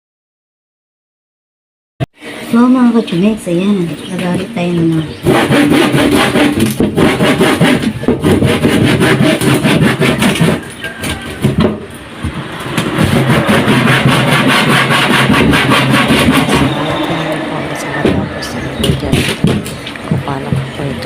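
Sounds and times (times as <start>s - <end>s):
hand saw cutting wood: 5.2s - 10.8s, 12.8s - 17.4s.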